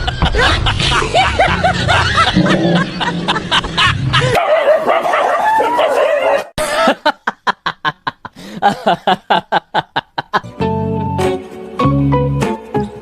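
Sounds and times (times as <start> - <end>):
dog barking and whining: 4.4 - 6.5
rhythmic plucked music: 10.4 - 13.0.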